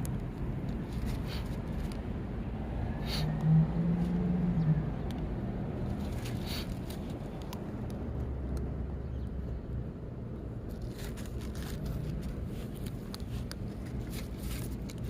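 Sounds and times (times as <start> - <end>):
road traffic rumbling: 0.0 - 15.0
vehicle engine passing: 0.9 - 9.8.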